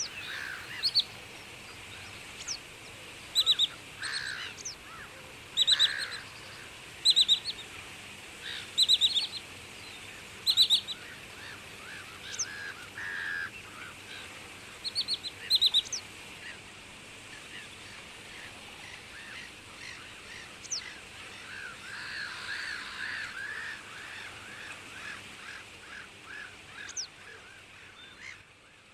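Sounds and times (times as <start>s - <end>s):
birds calling: 0.0s - 7.7s, 8.4s - 16.1s.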